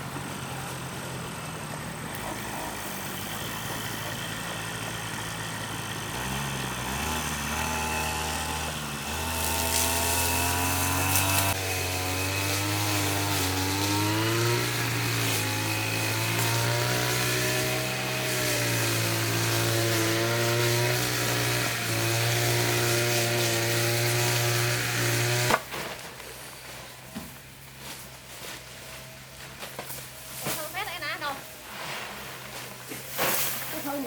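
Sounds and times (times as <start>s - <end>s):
small engine running: 0.0s - 25.7s.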